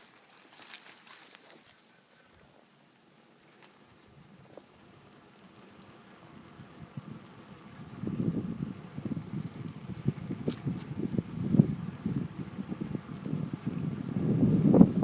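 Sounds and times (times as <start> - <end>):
crickets chirping: 0.0 - 15.0
high insect hiss: 0.0 - 15.0.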